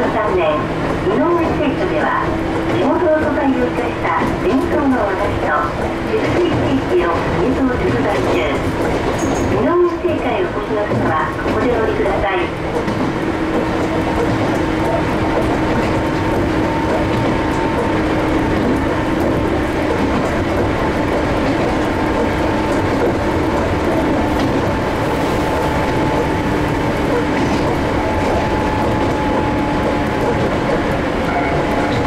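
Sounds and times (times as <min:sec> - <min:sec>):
train running gear hum: 0:00.0 - 0:32.0
train wheels running on rails: 0:00.0 - 0:32.0.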